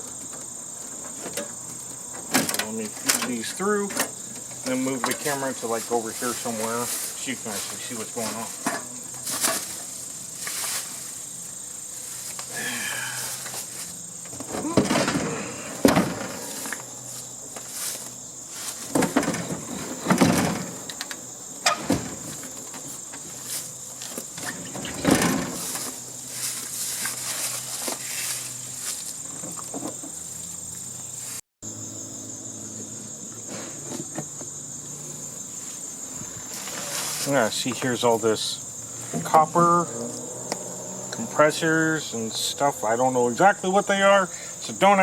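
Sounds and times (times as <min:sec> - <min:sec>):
high insect drone: 0:00.0 - 0:45.0
wires rustling and scraping in metal: 0:00.8 - 0:12.6, 0:13.2 - 0:30.2, 0:36.4 - 0:38.0.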